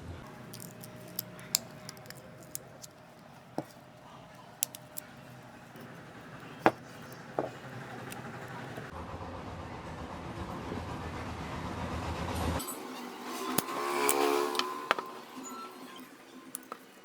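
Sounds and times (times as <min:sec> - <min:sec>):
hard objects clicking and tapping: 0:00.3 - 0:08.9, 0:13.5 - 0:15.2, 0:16.6 - 0:17.0.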